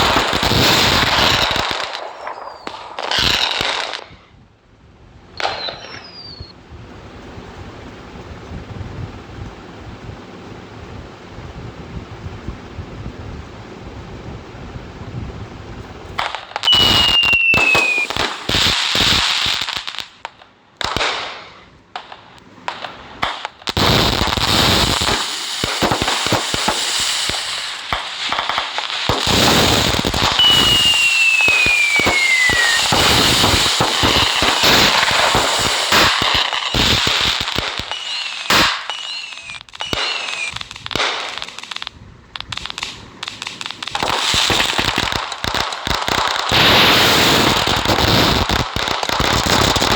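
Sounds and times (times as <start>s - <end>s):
firecrackers crackling and popping: 0.0s - 4.3s, 5.4s - 6.6s, 15.8s - 49.9s
falling firework whistles: 0.0s - 4.4s, 5.4s - 6.6s, 16.2s - 20.1s, 22.7s - 49.9s.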